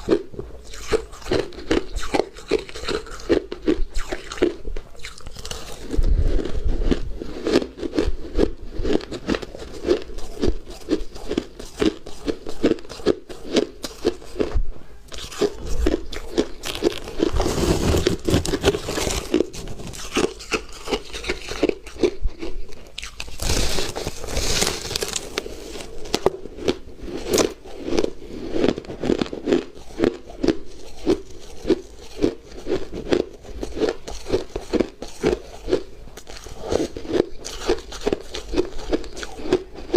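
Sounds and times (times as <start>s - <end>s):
person chewing crunchy ice: 0.0s - 39.9s.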